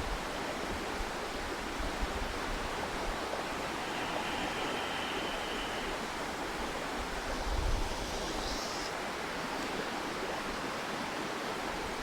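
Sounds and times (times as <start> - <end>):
river flowing: 2.2 - 11.8.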